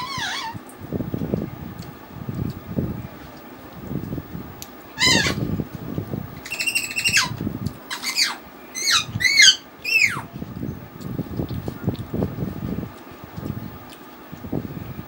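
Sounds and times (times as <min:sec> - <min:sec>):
bird squawking: 0:00.0 - 0:00.6, 0:05.0 - 0:05.4, 0:06.4 - 0:10.3
soft eating sounds: 0:00.6 - 0:15.0.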